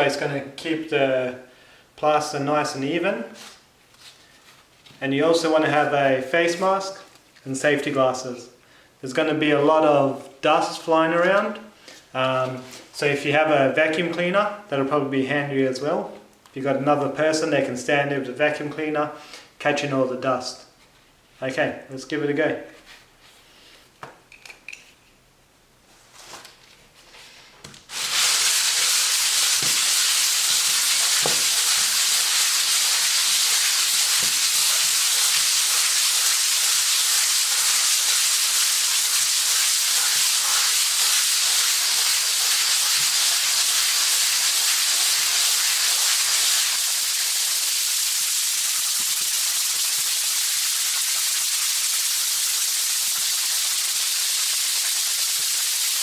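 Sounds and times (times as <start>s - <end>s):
sandpaper rubbing on plaster: 27.9s - 47.6s.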